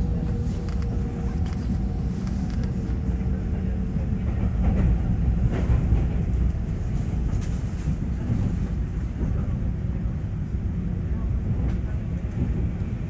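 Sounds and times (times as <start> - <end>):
train wheels rumbling on rails: 0.0 - 13.0
faint rail clicks: 0.1 - 3.4.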